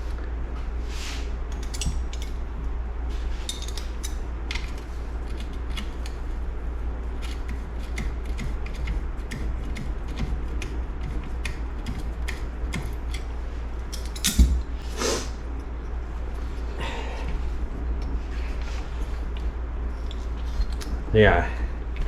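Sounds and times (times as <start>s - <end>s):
steady low hum: 0.0s - 22.0s
metallic clicks of tools: 1.5s - 2.4s.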